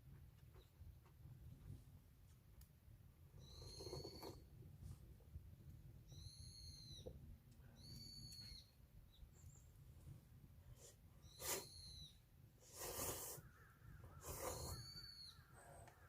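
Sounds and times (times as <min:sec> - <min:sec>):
bird calling: 0:03.4 - 0:04.4, 0:06.1 - 0:09.5, 0:12.8 - 0:16.0.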